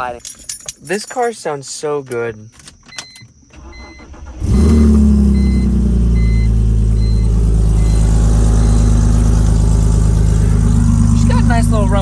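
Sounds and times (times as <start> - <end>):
car engine starting and idling: 3.5 - 12.0
warning chime beeping: 3.8 - 9.3.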